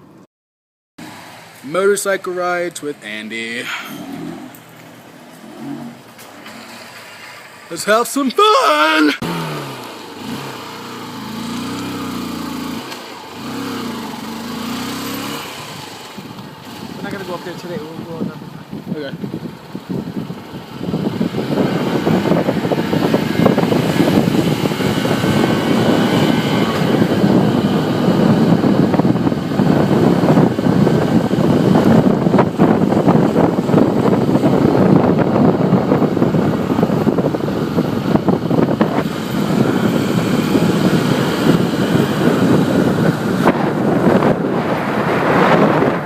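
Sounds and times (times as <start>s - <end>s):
motorcycle engine running: 9.2s - 46.0s
wind buffeting microphone: 10.2s - 46.0s.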